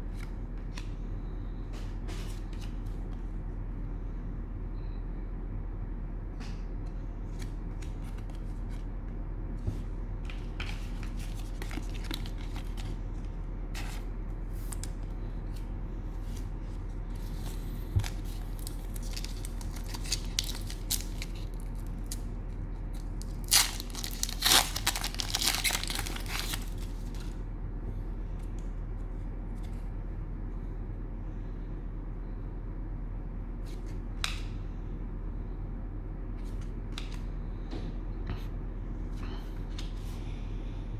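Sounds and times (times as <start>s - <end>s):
steady low hum: 0.0s - 40.9s
cellophane wrapper crinkling and tearing: 10.6s - 13.0s, 17.2s - 22.3s, 22.9s - 27.4s.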